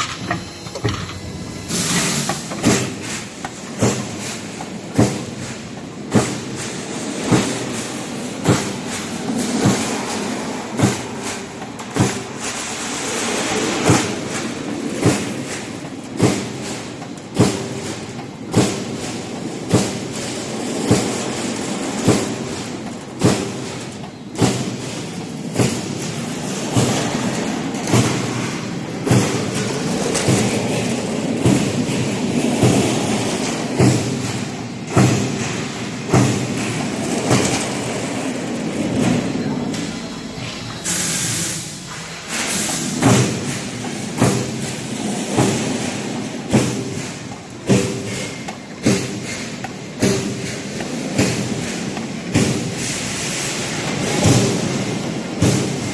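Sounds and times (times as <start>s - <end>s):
heavy machine thumps: 0.0s - 5.4s, 27.8s - 40.0s
roll forming machine rush: 0.0s - 55.9s.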